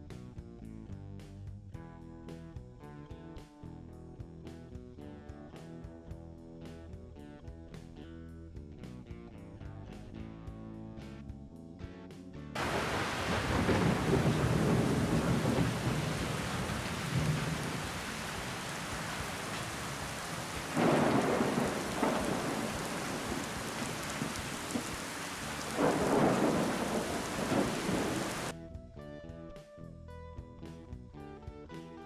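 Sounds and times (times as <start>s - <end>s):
steady rain: 12.6s - 28.5s
thunder rumbling: 12.6s - 28.5s.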